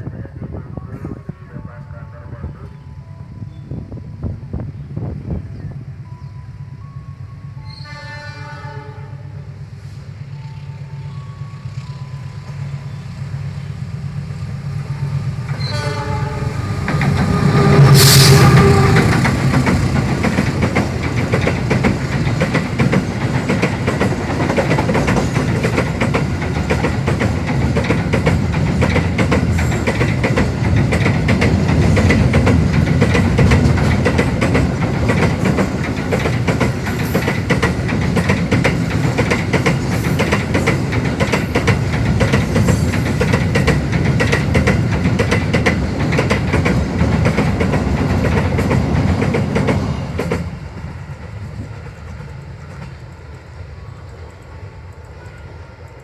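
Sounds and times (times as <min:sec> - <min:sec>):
train wheels rumbling on rail: 0:00.0 - 0:56.0
clickety-clack clatter: 0:18.7 - 0:50.5.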